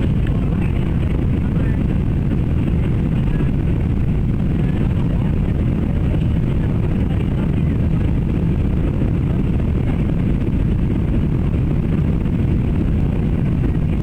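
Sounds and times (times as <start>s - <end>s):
airplane cabin engine drone: 0.0s - 14.0s.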